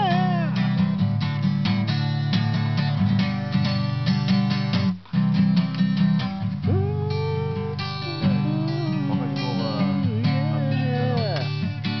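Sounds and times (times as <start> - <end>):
acoustic guitar strumming: 0.0 - 12.0
sliding melody line: 6.6 - 11.6.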